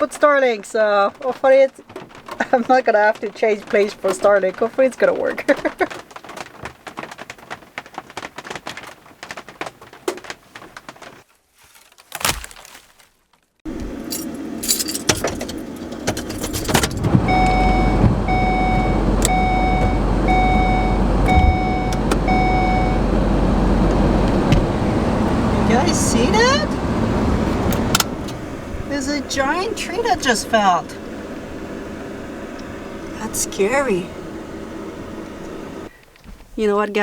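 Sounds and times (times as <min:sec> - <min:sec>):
keys jingling: 0:13.9 - 0:17.5
vehicle warning chime beeping: 0:16.3 - 0:35.9
low rumble: 0:17.2 - 0:35.8.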